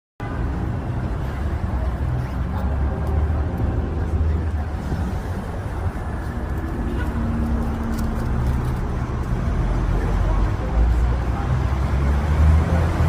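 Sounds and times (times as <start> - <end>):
traffic rumble: 0.2 - 13.0.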